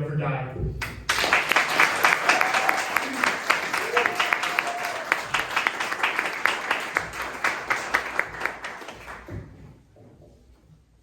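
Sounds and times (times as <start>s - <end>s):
audience applauding: 0.8s - 9.6s.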